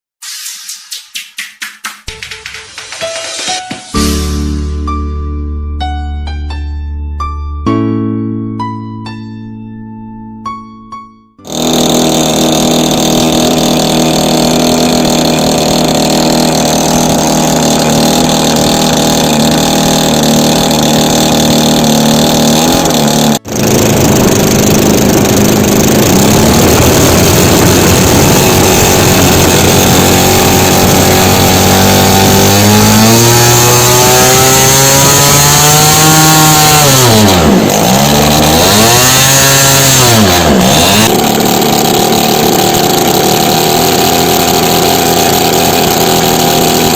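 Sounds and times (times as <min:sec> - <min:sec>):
model plane engine buzzing: 0:11.4 - 0:46.9.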